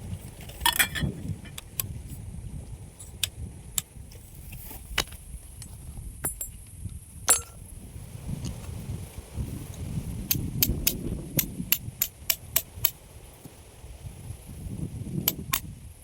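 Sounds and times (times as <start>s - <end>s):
sharp clicks and clinks: 7.3s - 7.6s.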